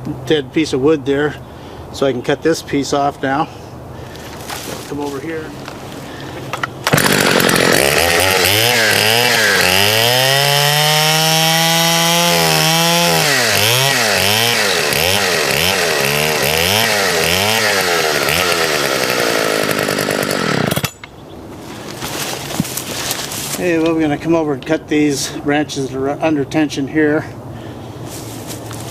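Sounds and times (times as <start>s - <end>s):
chainsaw cutting log: 6.6s - 21.1s, 21.8s - 23.7s.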